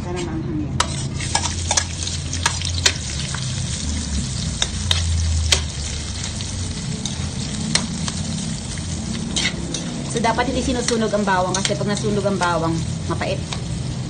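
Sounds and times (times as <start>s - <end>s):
spatula scraping metal wok: 0.1s - 13.9s
vegetables sizzling in hot oil: 0.8s - 14.0s.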